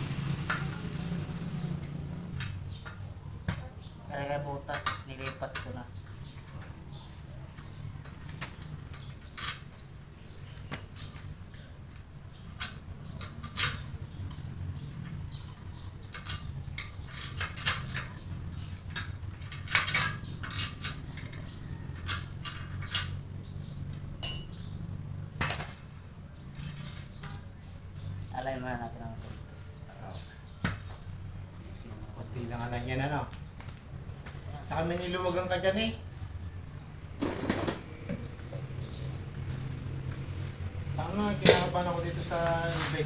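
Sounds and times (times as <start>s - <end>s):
metal tools clinking: 18.9s - 21.4s, 24.2s - 24.7s.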